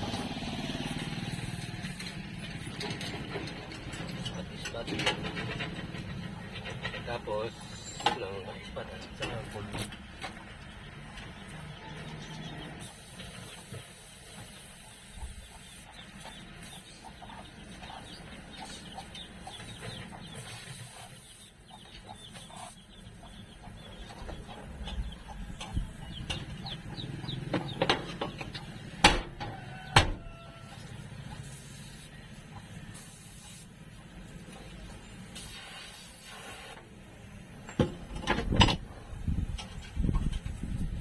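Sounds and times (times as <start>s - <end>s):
chickens clucking: 13.4s - 31.5s
sharp knocks: 27.6s - 30.3s.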